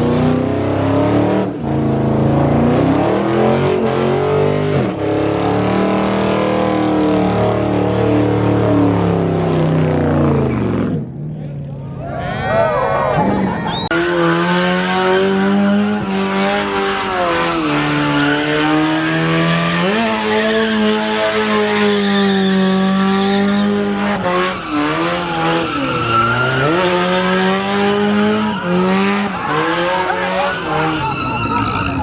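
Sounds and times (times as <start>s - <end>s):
car engine at high revs: 0.0s - 11.3s, 13.9s - 32.0s
tyres squealing and skidding: 12.0s - 32.0s.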